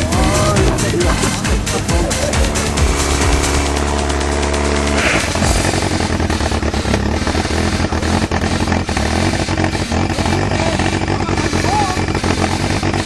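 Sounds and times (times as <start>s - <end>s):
background music: 0.0s - 6.1s
engine running under load: 0.0s - 13.0s.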